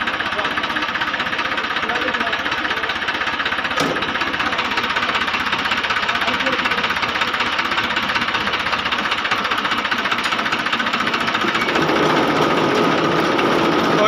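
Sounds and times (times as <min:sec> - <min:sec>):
tractor engine clattering: 0:00.0 - 0:14.0
sharp knock: 0:03.8 - 0:04.1.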